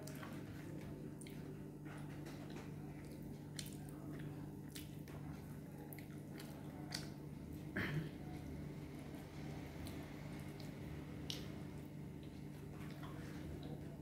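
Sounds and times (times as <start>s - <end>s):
person chewing food: 0.0s - 7.7s, 9.4s - 13.9s
steady low hum: 0.0s - 14.0s
wet mouth clicks and smacks: 5.9s - 7.1s, 10.6s - 11.6s.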